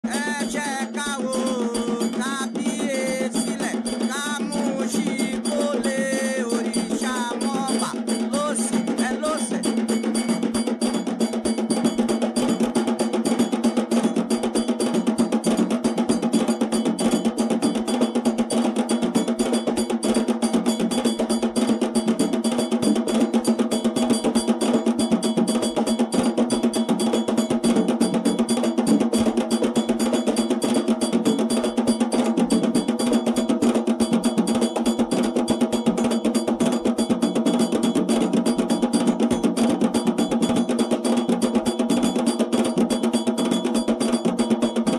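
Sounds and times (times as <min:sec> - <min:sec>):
voices singing: 0:00.0 - 0:09.8
hand drums: 0:00.0 - 0:44.9
metal bell rhythm: 0:00.0 - 0:44.9.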